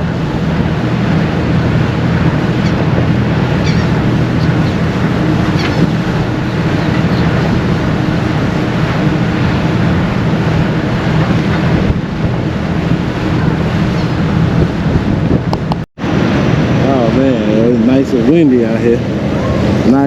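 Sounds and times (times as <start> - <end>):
ferry engines humming: 0.0 - 20.0
wind buffeting microphone: 0.0 - 20.0.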